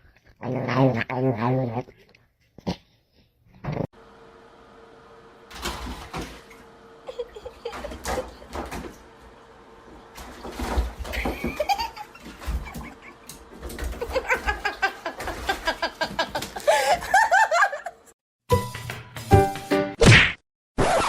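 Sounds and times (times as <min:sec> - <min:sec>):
people laughing: 0:07.0 - 0:08.5, 0:11.2 - 0:13.3, 0:14.0 - 0:18.1.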